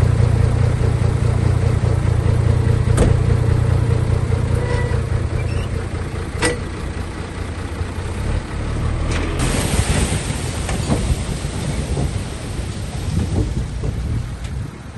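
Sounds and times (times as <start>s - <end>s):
diesel machinery rumbling: 0.0s - 14.9s.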